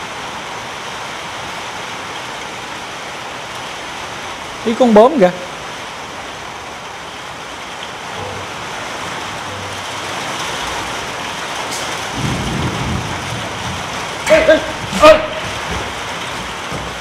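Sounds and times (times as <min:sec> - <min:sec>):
heavy rain pouring: 0:00.0 - 0:17.0
low rumble: 0:08.1 - 0:11.3.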